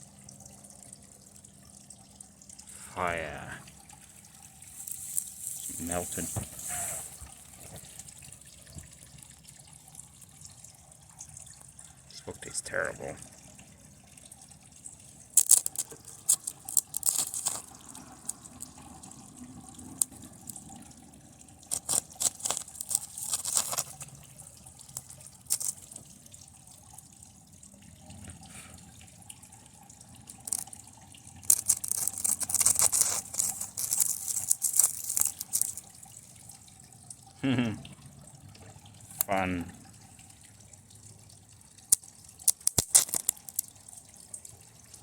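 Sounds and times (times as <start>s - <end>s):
circuit board crackling and sizzling: 4.7s - 7.3s, 15.4s - 18.8s, 24.9s - 26.0s, 31.4s - 35.9s, 42.4s - 43.7s.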